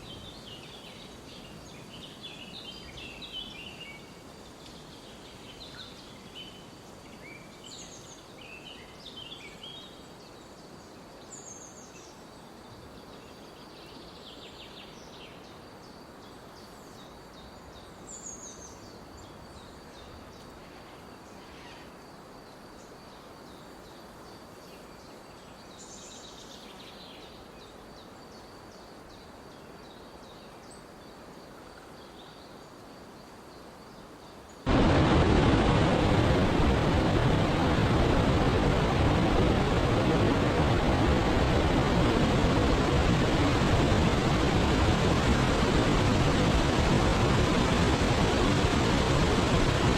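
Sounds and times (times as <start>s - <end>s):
soft steady hiss: 0.0s - 49.9s
loud rushing noise: 34.7s - 49.9s.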